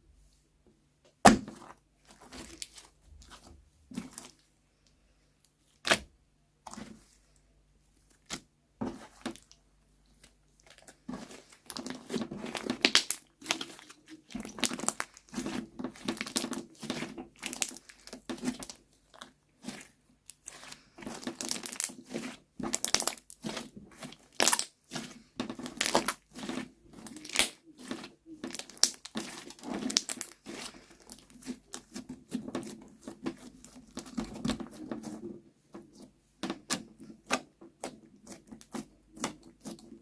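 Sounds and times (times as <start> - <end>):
slime squished by hand: 8.1 - 35.2, 35.9 - 40.0
crinkly crackling pops: 10.2 - 19.3, 20.3 - 35.3.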